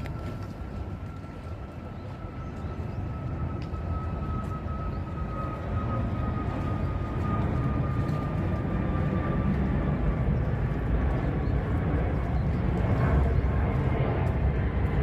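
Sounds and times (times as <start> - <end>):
jet airliner rumble: 0.0 - 15.0.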